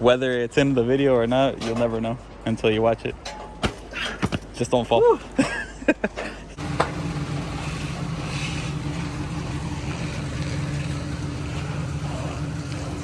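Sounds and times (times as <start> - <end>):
car engine idling: 6.6 - 13.0.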